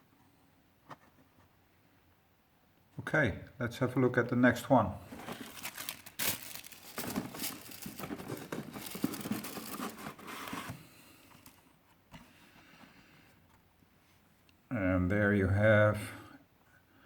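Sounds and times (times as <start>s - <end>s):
packaging crinkling and rustling: 5.0s - 11.7s.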